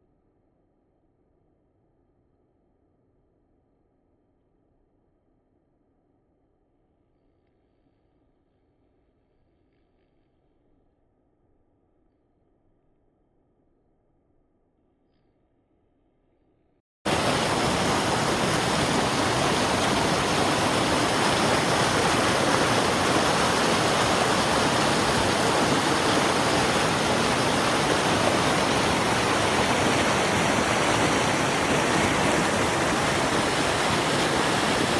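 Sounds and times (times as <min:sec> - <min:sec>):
rushing water: 0:17.1 - 0:34.9.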